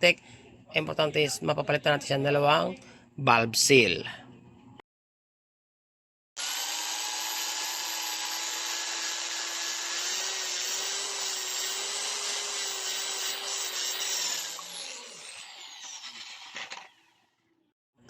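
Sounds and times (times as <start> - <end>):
electric drill lapping a valve: 6.4 - 17.2.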